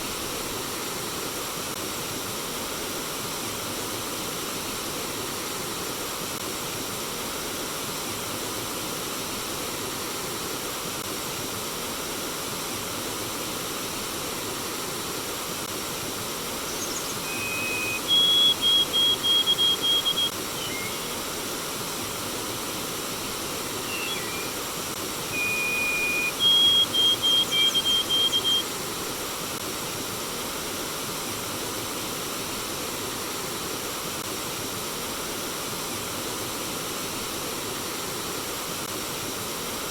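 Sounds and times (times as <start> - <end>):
stream water flowing: 13.0 - 34.6
bird singing: 16.7 - 21.2, 23.6 - 24.7, 25.3 - 28.7.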